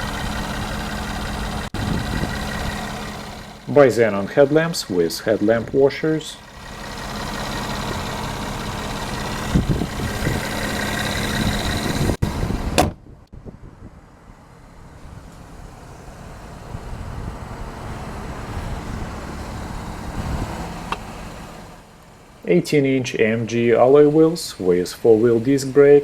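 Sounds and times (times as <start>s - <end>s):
car engine idling: 0.0s - 26.0s
low thumps: 7.5s - 13.7s.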